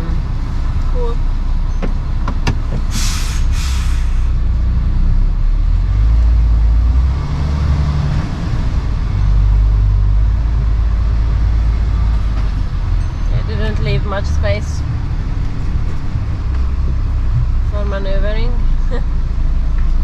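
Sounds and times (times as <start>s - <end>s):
lorry engine rumbling: 0.0s - 20.0s
air brakes hissing: 2.8s - 4.4s.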